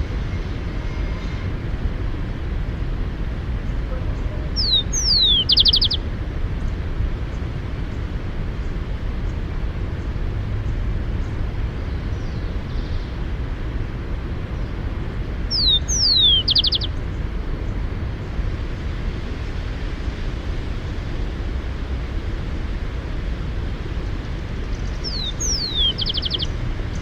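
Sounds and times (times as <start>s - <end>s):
steady low rumble: 0.0s - 27.0s
sparrow singing: 4.1s - 6.0s, 15.4s - 17.1s, 24.6s - 27.0s.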